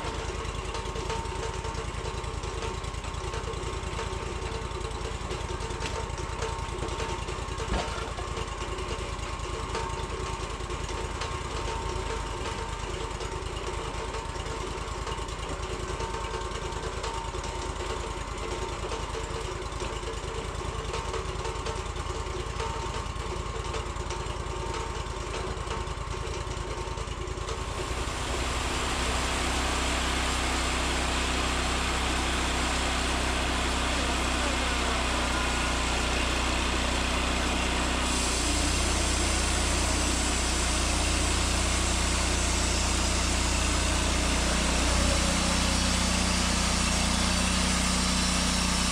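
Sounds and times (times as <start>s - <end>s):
sawmill engine droning: 0.0s - 9.4s, 27.4s - 48.9s
hiss: 37.4s - 48.9s.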